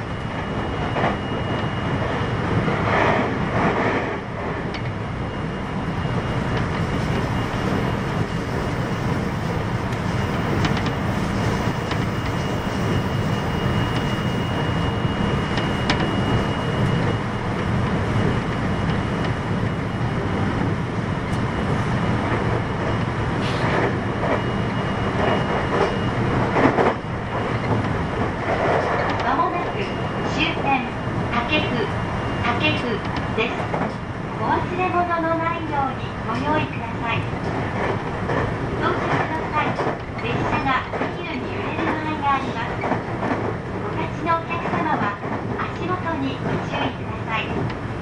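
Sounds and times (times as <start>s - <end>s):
train wheels rumbling: 0.0s - 48.0s
thin high whine: 5.3s - 20.0s.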